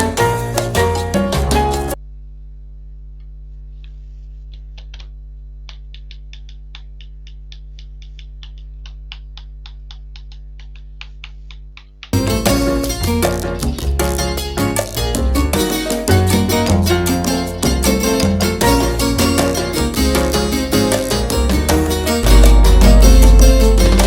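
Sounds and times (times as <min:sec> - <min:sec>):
background music: 0:00.0 - 0:02.0, 0:12.2 - 0:24.0.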